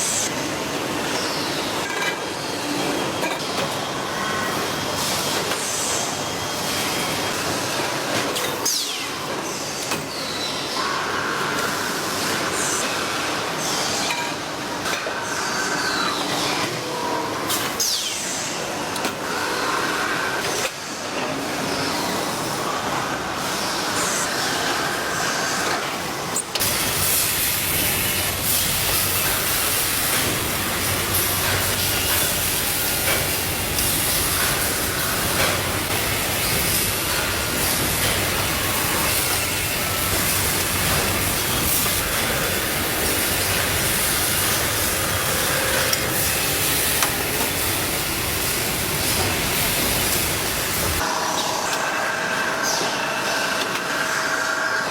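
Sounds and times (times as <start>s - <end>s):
factory machinery running: 0.0s - 54.9s
machine whines and squeals: 0.0s - 54.9s
loud steady hiss: 26.6s - 51.0s.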